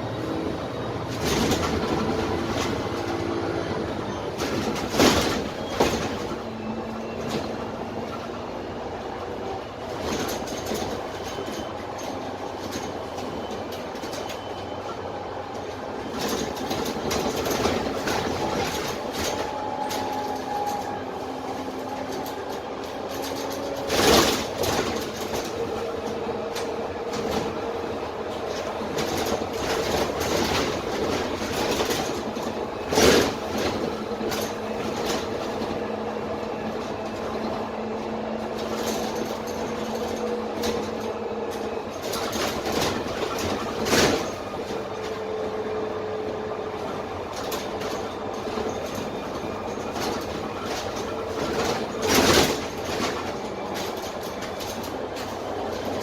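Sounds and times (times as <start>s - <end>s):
bus body rattle: 0.0s - 56.0s
bus diesel engine droning: 0.0s - 56.0s
loud knocks from bus body: 1.1s - 3.3s, 4.4s - 6.5s.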